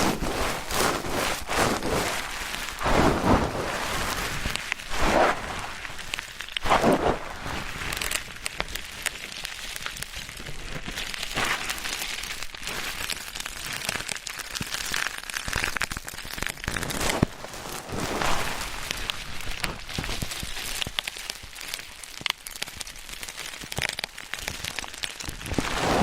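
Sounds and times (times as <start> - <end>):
swishes: 2.8 - 5.8, 6.6 - 7.6.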